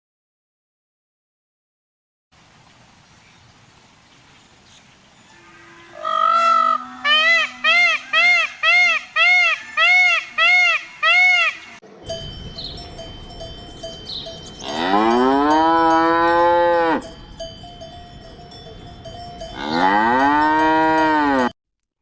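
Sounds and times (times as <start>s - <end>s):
cows mooing: 5.3s - 11.8s, 14.7s - 17.0s, 19.6s - 21.5s
faint bell-like tone: 11.8s - 16.0s.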